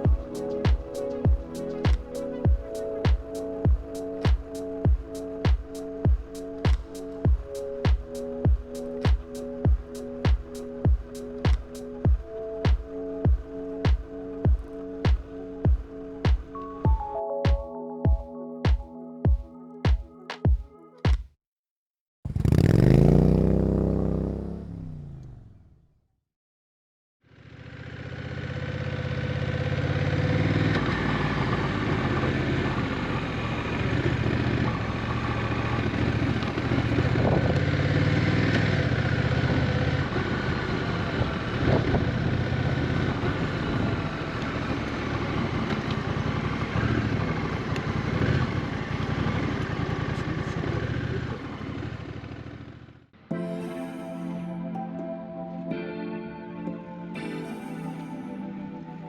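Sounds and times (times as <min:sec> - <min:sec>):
motorcycle engine running: 0:22.3 - 0:25.7, 0:27.4 - 0:53.1.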